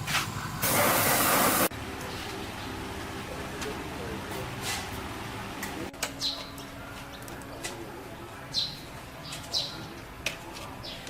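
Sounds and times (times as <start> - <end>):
bird chirping: 6.1 - 7.2.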